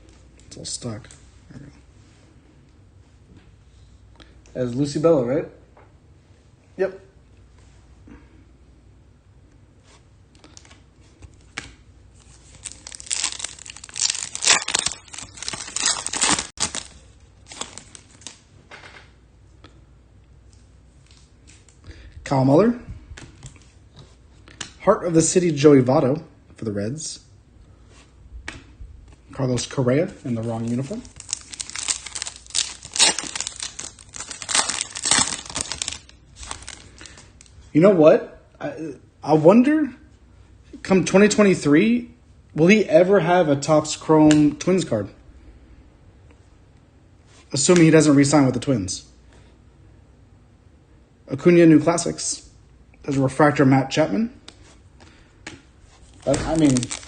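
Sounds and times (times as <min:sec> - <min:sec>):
foil wrapper tearing and crinkling: 0:12.4 - 0:18.4, 0:30.3 - 0:37.5, 0:56.0 - 0:57.0.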